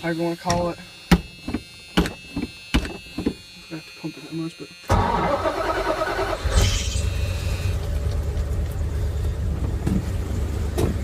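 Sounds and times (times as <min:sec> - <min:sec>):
engine rumbling: 0:04.9 - 0:11.0.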